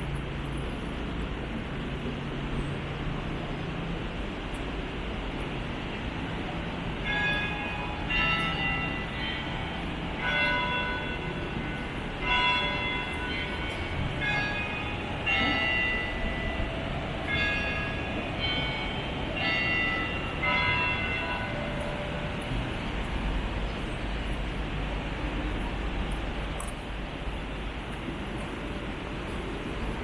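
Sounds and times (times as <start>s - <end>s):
low rumble of traffic: 0.0s - 30.0s
bells ringing different notes: 7.0s - 24.6s.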